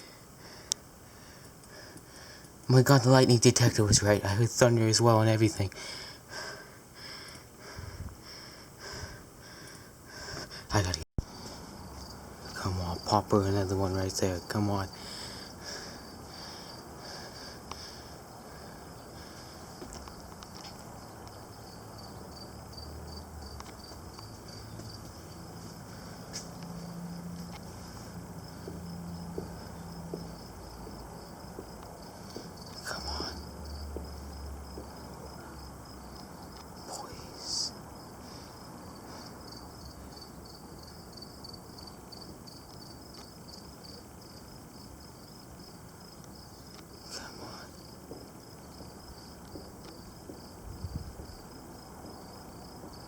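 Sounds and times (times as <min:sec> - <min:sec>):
insects chirping: 0:00.0 - 0:53.0
low background noise: 0:00.0 - 0:53.0
low outdoor rumble: 0:14.9 - 0:40.5.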